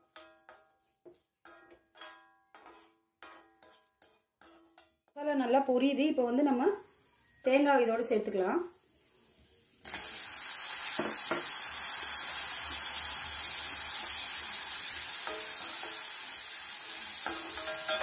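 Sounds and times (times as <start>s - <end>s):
metal spatula scraping pan: 0.0s - 5.0s, 15.2s - 18.0s
food sizzling in hot oil: 8.9s - 18.0s.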